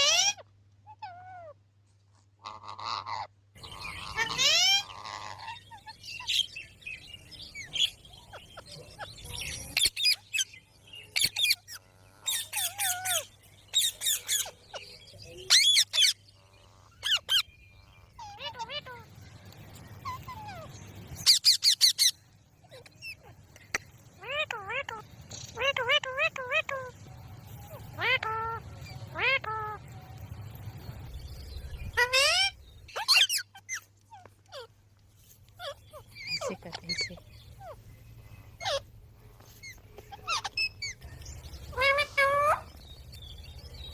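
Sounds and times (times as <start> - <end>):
parrot screeching and chirping: 0.0 - 1.6, 2.4 - 6.5, 7.5 - 10.4, 11.1 - 14.9, 15.5 - 19.1, 20.0 - 23.3, 24.2 - 25.0, 25.6 - 26.9, 27.8 - 29.8, 31.9 - 34.7, 35.5 - 37.8, 38.6 - 42.8
parrot wavering call: 31.9 - 34.7, 38.6 - 38.9.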